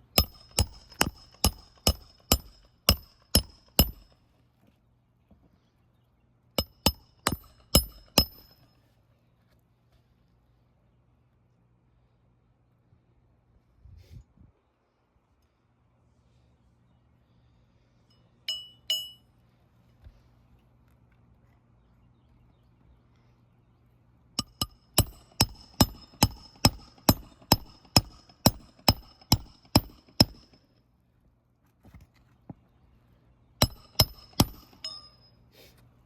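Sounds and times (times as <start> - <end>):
hammer striking metal: 0.2 - 4.1, 6.6 - 8.6, 24.4 - 30.6, 33.6 - 35.3.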